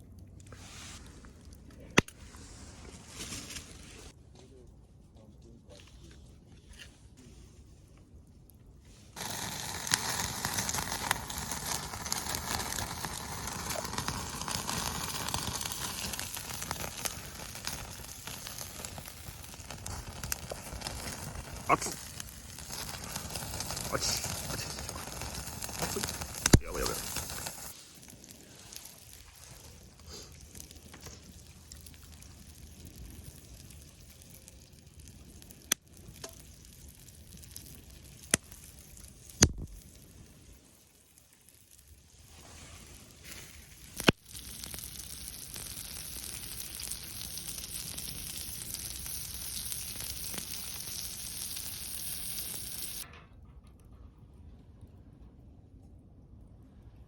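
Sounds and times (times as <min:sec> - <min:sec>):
meat sizzling over fire: 0:09.2 - 0:53.1.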